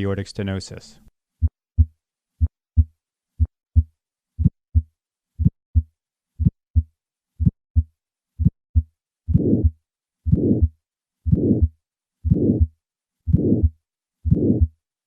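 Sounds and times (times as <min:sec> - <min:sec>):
heartbeat lub-dub: 0:01.4 - 0:12.7, 0:13.3 - 0:14.8
heart ejection click: 0:10.3 - 0:10.7, 0:11.3 - 0:11.7, 0:13.3 - 0:13.7, 0:14.3 - 0:14.7.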